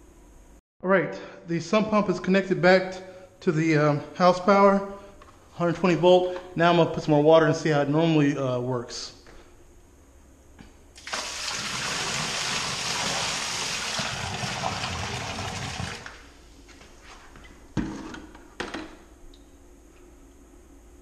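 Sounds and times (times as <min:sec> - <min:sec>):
water gushing from a bucket: 0:11.0 - 0:16.2.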